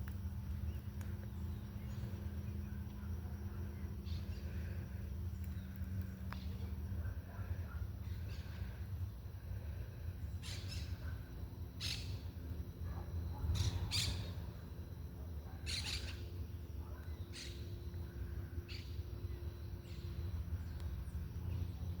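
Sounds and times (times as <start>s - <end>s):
steady low rumble: 0.0s - 22.0s
birds chirping: 15.6s - 21.8s.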